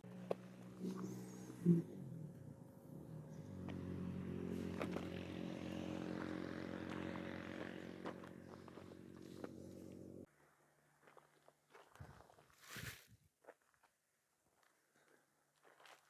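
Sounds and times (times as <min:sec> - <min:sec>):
lower tone: 0:00.0 - 0:10.3.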